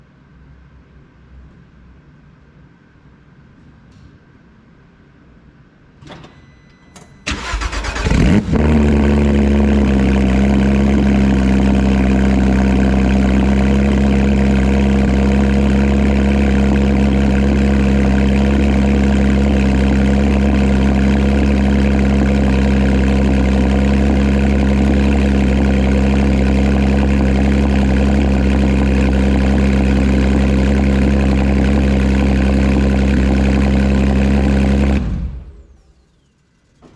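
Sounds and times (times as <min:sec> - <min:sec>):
car engine idling: 0:07.3 - 0:36.0.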